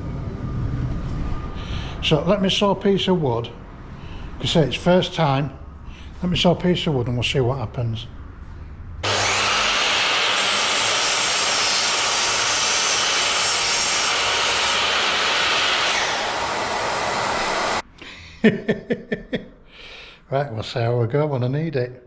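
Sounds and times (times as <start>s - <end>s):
dust extractor running: 9.0s - 17.8s
mitre saw cutting wood: 9.0s - 17.8s.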